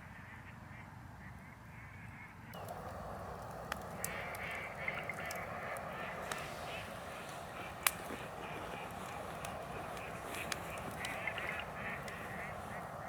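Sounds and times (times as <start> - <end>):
geese honking in distance: 2.6 - 13.0
steady hiss with crackles: 2.6 - 13.0.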